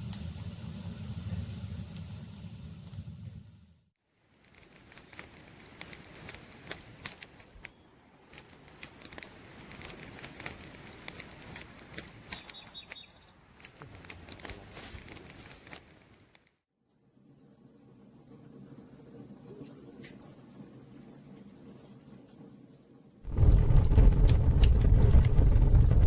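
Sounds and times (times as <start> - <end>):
campfire crackling and popping: 8.3 - 12.6, 23.3 - 26.0.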